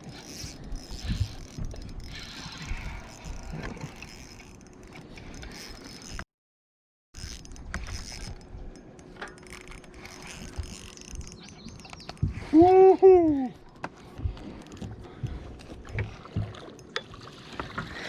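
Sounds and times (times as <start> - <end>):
fishing reel clicking: 0.1 - 6.2, 7.2 - 12.2.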